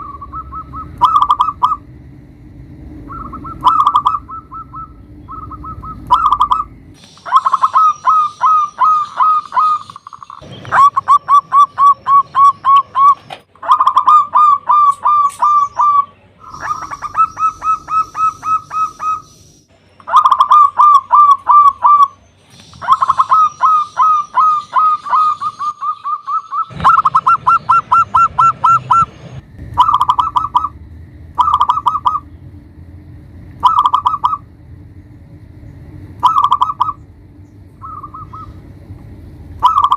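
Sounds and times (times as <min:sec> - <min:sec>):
dove cooing: 0:00.0 - 0:01.9, 0:03.0 - 0:19.3, 0:20.0 - 0:22.2, 0:22.8 - 0:29.1, 0:29.8 - 0:30.8, 0:31.4 - 0:32.3, 0:33.6 - 0:34.5, 0:36.2 - 0:37.0, 0:39.6 - 0:39.9.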